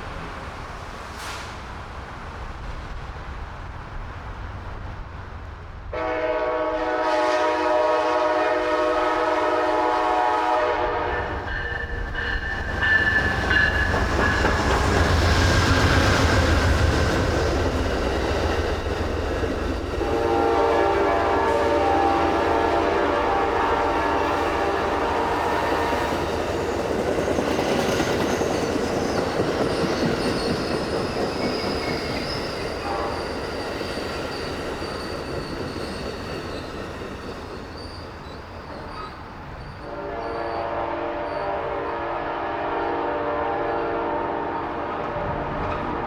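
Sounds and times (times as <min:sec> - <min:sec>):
train wheels on rails: 0:00.0 - 0:46.0
train air horn blast: 0:05.9 - 0:11.5, 0:20.0 - 0:26.0, 0:32.8 - 0:33.4, 0:39.8 - 0:46.0.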